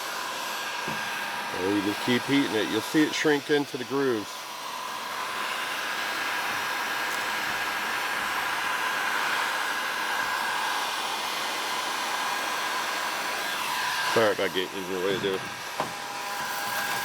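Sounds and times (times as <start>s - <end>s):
heat gun fan blowing: 0.0s - 17.0s.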